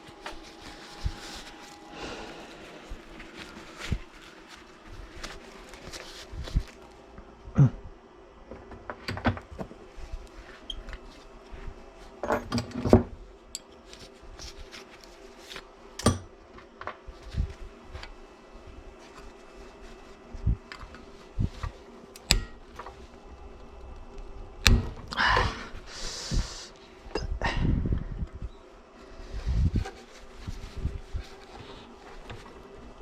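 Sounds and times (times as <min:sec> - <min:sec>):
clicks and knocks of tools: 0:12.2 - 0:13.8.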